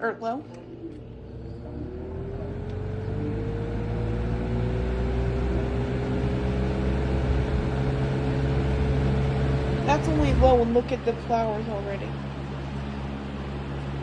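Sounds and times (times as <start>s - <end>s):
box fan motor hum and whine: 0.0s - 14.0s.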